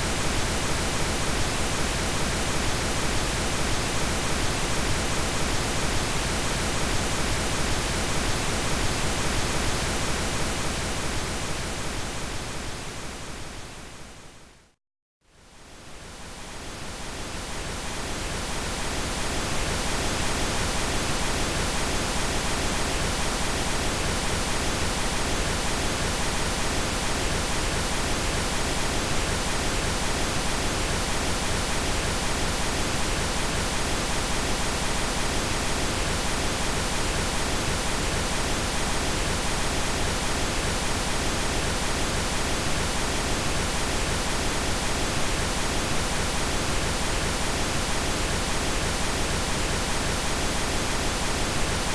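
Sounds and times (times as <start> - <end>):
pink noise hiss: 15.8 - 51.9.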